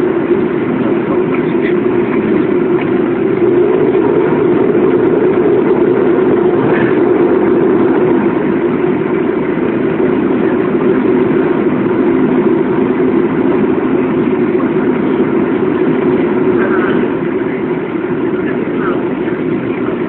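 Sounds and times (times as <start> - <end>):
jet engine drone in cabin: 0.0 - 20.0.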